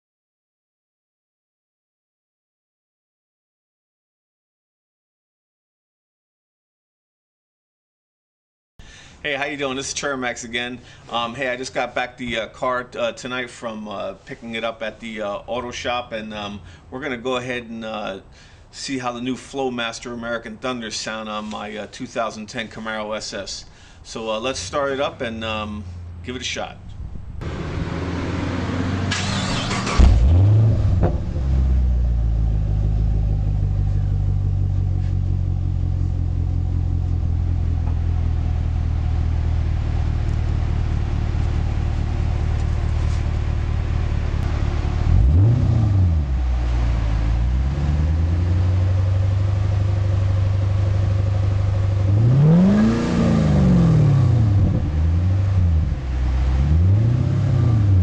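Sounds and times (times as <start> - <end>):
car engine idling and revving: 27.2 - 58.0.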